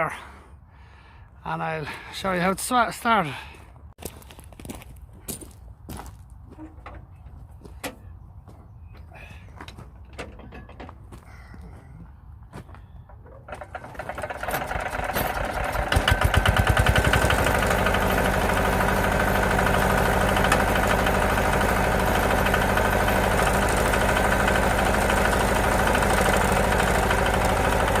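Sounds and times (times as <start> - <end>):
diesel engine starting and idling: 13.1 - 28.0.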